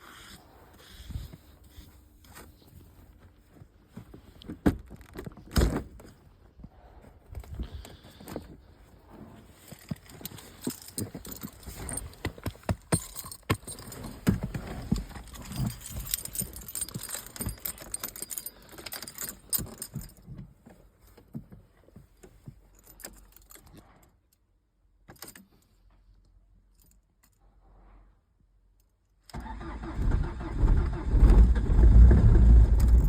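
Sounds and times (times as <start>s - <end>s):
car keys jangling: 9.7s - 20.4s, 32.8s - 33.0s.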